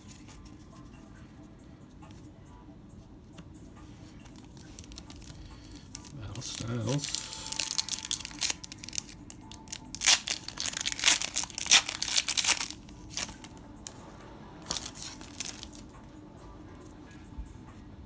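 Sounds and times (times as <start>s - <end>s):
foil pack tearing: 4.3s - 13.5s, 14.7s - 15.9s
foil wrapper crinkling: 4.3s - 13.6s, 14.7s - 15.9s.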